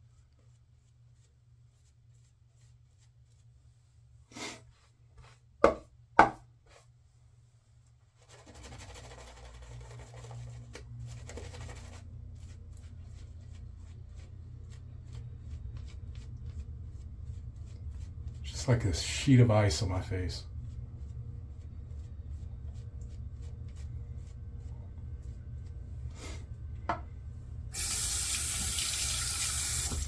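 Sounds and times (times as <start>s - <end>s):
hard items knocking on counter: 5.6s - 6.4s.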